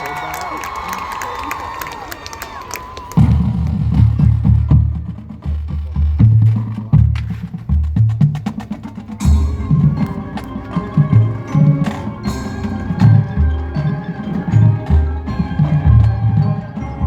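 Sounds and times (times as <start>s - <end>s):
marching band music: 2.9s - 17.0s
mallet keyboards: 7.7s - 17.0s.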